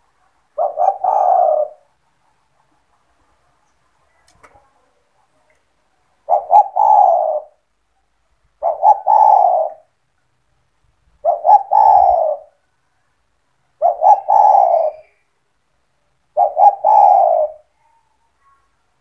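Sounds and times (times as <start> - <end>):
dove cooing: 0.0 - 2.0, 6.2 - 7.6, 8.6 - 10.0, 11.2 - 12.6, 13.8 - 15.2, 16.3 - 18.6.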